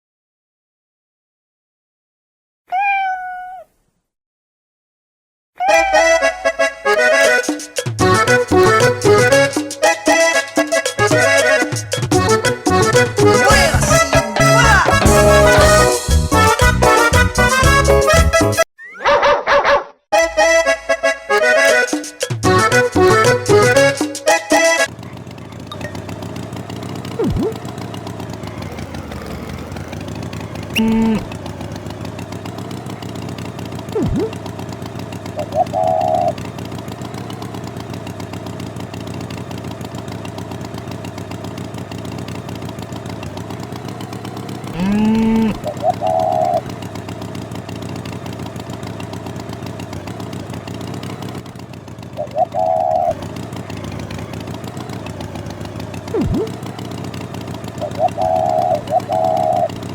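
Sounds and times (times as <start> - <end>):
engine hum: 5.7 - 18.7, 20.2 - 59.9
loud brief calls: 44.8 - 45.6.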